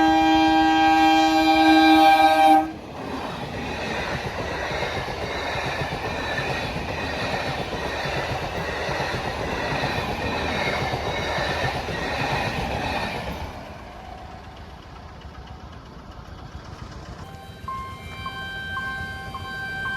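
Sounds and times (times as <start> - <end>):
train coaches rumbling: 0.0 - 19.9
faint high wheel squeal: 17.2 - 19.9.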